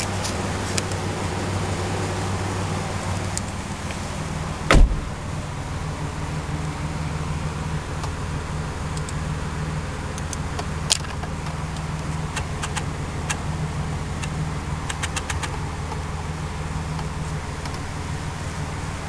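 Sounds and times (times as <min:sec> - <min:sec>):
car engine idling: 0:00.0 - 0:19.0
sharp clicks: 0:10.2 - 0:13.4, 0:14.2 - 0:16.0.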